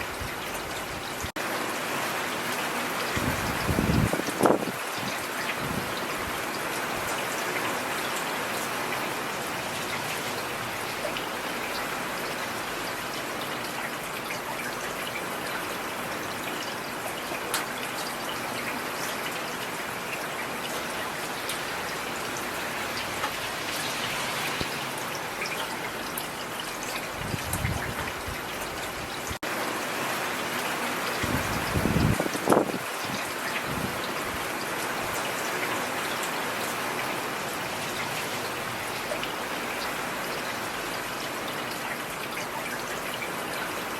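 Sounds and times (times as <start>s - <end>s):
rain falling on street: 0.0s - 43.9s.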